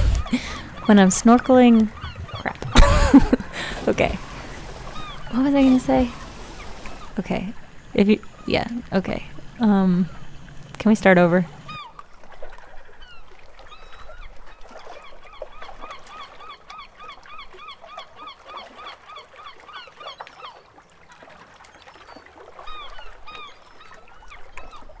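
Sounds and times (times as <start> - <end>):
bird honking calls: 0.0 - 2.8, 3.4 - 10.3.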